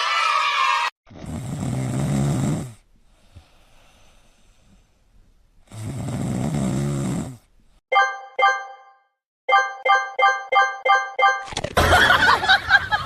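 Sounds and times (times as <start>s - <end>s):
pet snoring: 1.1s - 4.8s, 5.6s - 7.5s
plinked musical notes: 7.9s - 11.6s.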